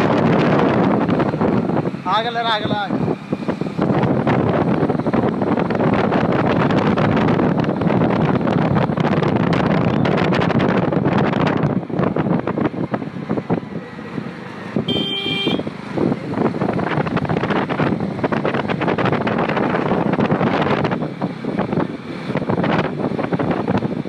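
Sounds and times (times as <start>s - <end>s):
motorcycle riding on road: 0.0s - 24.0s
wind buffeting microphone: 0.0s - 24.0s
brief horn beep: 14.9s - 15.7s.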